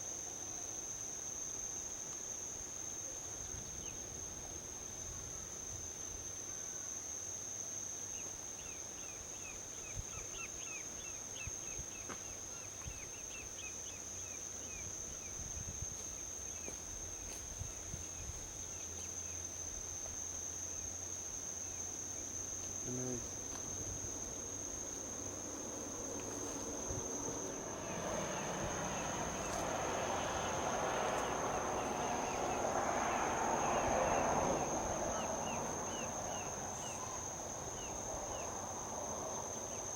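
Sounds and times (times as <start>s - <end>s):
insects droning: 0.0s - 39.9s
distant highway traffic: 21.6s - 39.9s
vehicle passing: 24.3s - 39.6s.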